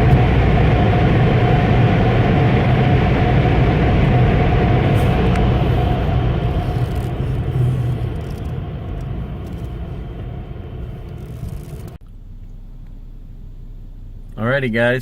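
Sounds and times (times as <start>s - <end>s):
car wash machinery rushing: 0.0s - 12.0s
low hum of car: 0.0s - 15.0s.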